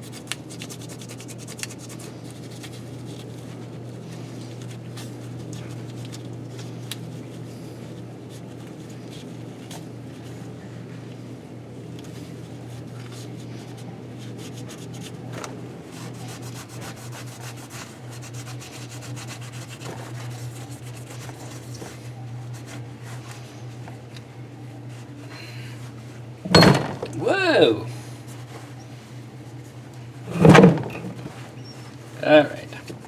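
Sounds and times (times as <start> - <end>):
rubbing and scrubbing: 0.0 - 5.4, 15.9 - 23.3.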